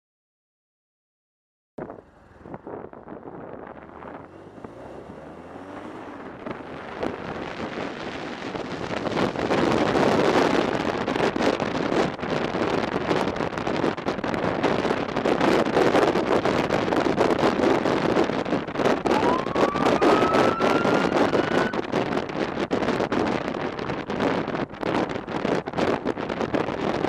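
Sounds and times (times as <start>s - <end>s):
motorcycle engine accelerating: 1.8s - 21.9s
wind buffeting microphone: 1.8s - 27.0s.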